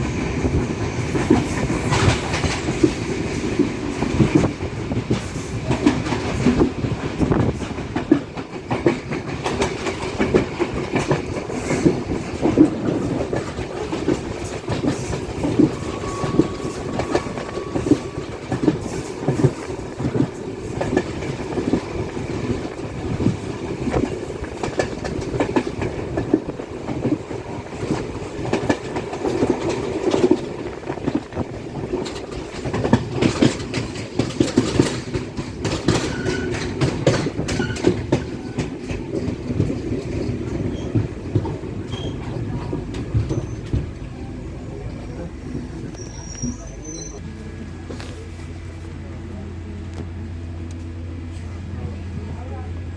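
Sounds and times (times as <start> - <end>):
train carriage rumble: 0.0 - 52.9
wheels clickety-clack on rails: 0.0 - 52.9.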